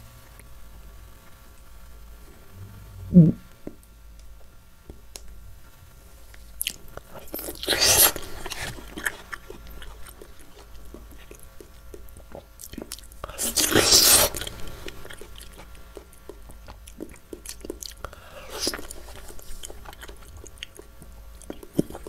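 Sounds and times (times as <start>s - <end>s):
soft chewing with wet clicks: 4.1s - 5.4s, 6.3s - 22.0s.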